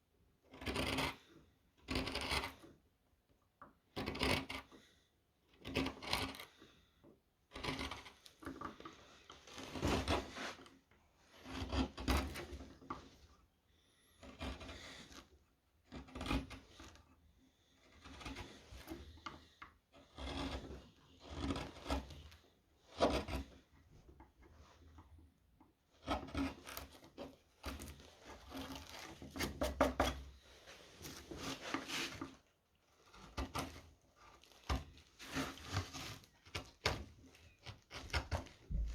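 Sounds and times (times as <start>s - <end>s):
chisel scraping wood: 0.4s - 2.8s, 3.9s - 38.9s.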